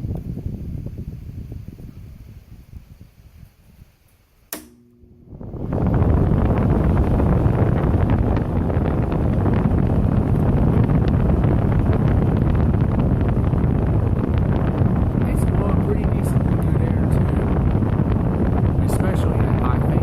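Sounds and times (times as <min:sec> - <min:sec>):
wind buffeting microphone: 0:00.0 - 0:04.1, 0:05.1 - 0:20.0
air conditioner fan blowing: 0:00.0 - 0:20.0
switch click: 0:04.5 - 0:05.0.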